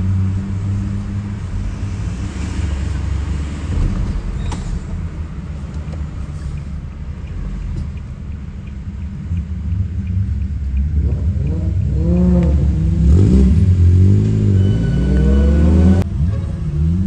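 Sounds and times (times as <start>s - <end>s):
car driving rumble: 0.0s - 17.0s
engine revving: 9.3s - 17.0s.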